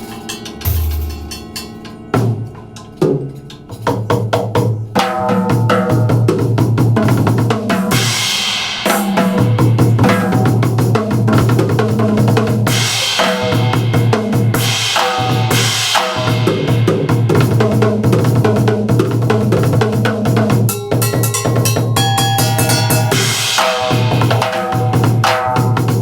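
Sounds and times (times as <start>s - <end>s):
cymbal crashes: 0.0s - 2.8s, 7.9s - 11.2s, 12.7s - 18.3s, 20.7s - 25.6s
band music: 0.0s - 7.2s
snare and bass drum beats: 0.7s - 1.7s, 5.0s - 26.0s.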